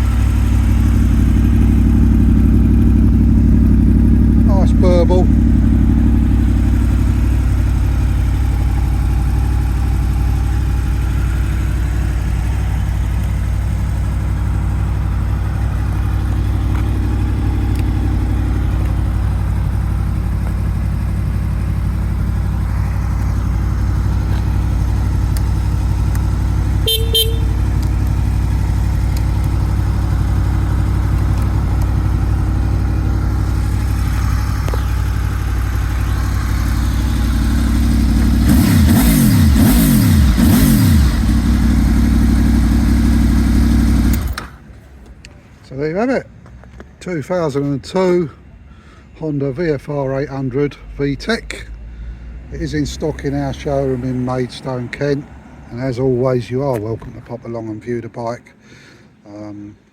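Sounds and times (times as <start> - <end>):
motorcycle engine idling: 0.0 - 45.4
horn beep: 26.7 - 27.8.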